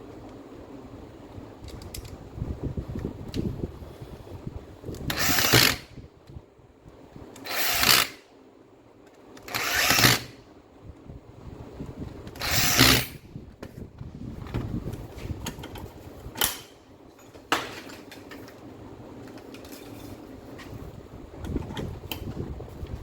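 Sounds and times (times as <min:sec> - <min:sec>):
angle grinder motor spinning up: 0:05.1 - 0:05.9, 0:07.4 - 0:08.2, 0:09.4 - 0:10.4, 0:12.4 - 0:13.2
handling clatter: 0:14.4 - 0:22.4.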